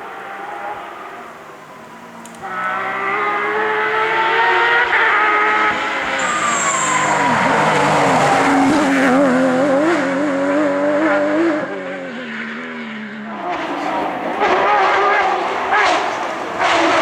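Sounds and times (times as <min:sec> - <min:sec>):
rally car engine revving: 0:00.0 - 0:17.0
high squeal: 0:06.0 - 0:08.5.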